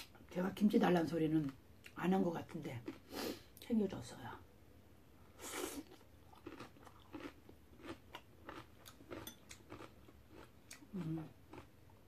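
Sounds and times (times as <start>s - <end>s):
crunchy kimchi chewing: 1.4s - 3.1s, 5.4s - 12.0s.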